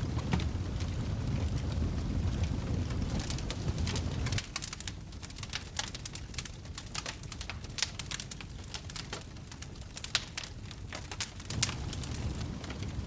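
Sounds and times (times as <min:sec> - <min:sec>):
wood fire crackling: 0:00.0 - 0:13.0
low rumble: 0:11.4 - 0:13.0.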